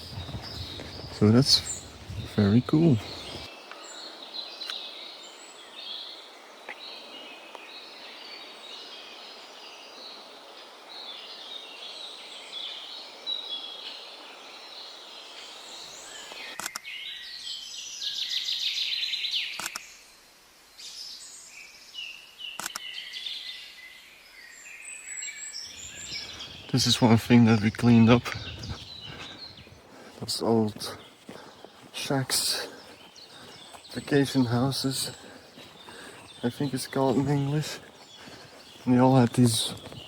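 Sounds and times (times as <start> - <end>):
rapid bird trill: 0.0 - 3.5, 25.7 - 40.0
songbirds singing: 0.0 - 40.0.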